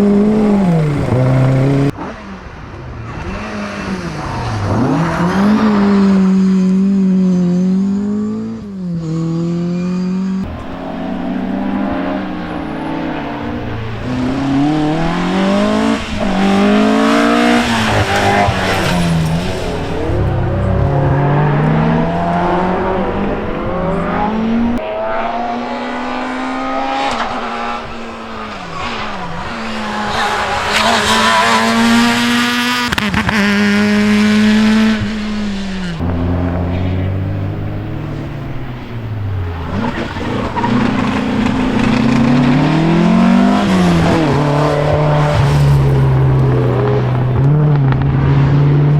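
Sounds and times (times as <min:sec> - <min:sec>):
rally car engines revving: 0:00.0 - 0:48.9.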